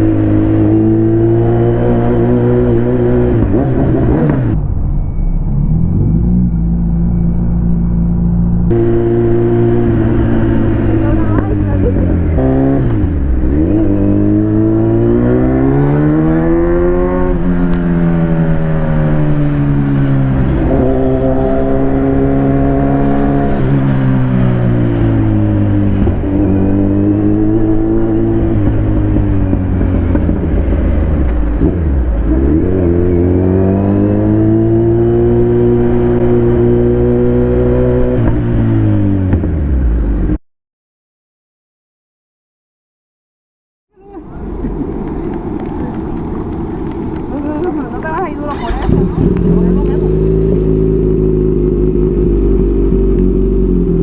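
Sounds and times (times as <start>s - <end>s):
motorcycle engine revving: 0.0s - 40.4s, 44.0s - 54.0s.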